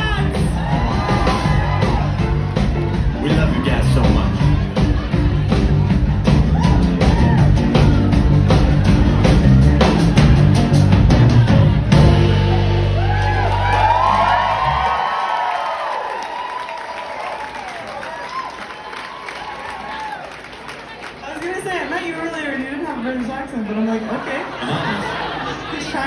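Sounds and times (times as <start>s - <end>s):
live rock band playing: 0.0s - 15.0s
drums: 0.0s - 20.5s
crowd cheering and whooping: 0.0s - 21.0s.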